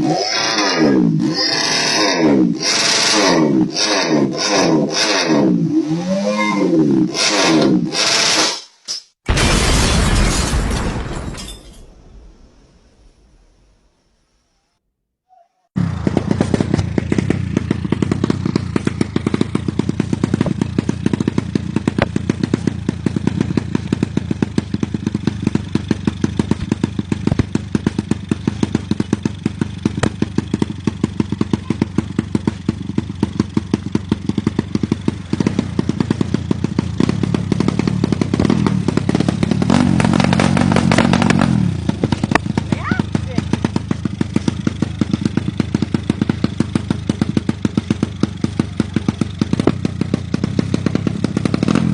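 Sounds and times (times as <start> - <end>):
broken engine knocking: 15.8 - 51.9.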